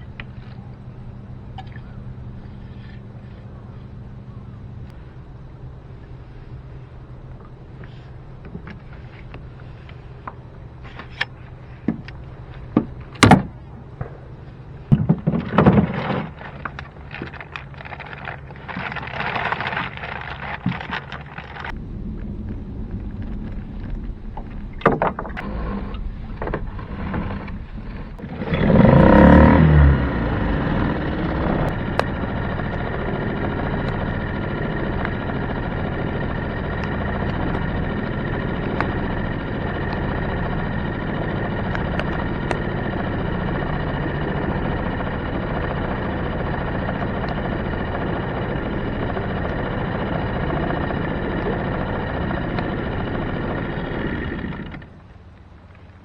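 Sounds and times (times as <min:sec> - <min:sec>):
outboard motor starting and running: 0:00.0 - 0:56.0
gear knocking in boat: 0:14.8 - 0:21.8, 0:23.0 - 0:29.6.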